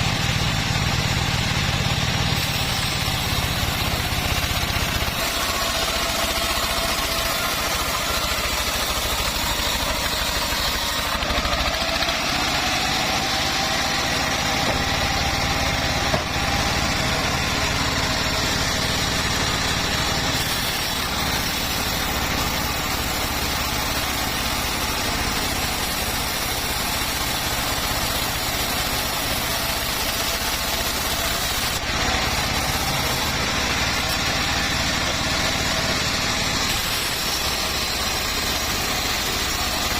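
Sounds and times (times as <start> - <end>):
bandsaw sawmill drone: 0.0 - 39.9.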